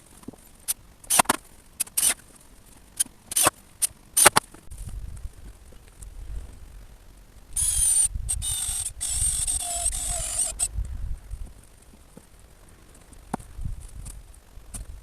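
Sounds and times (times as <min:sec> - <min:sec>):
power drill-driver running: 0:07.6 - 0:10.7.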